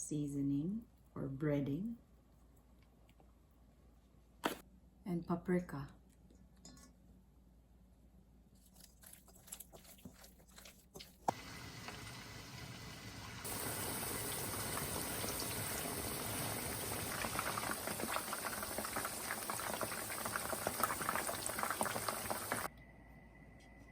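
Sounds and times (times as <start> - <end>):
chicken frying in hot oil: 10.9 - 22.7.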